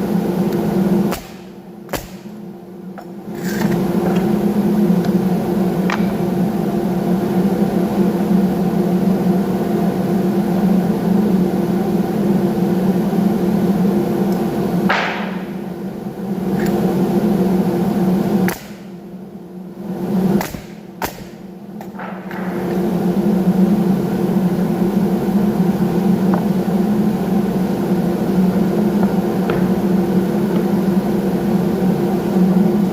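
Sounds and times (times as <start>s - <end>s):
woodworking machine motor humming: 21.8s - 32.9s.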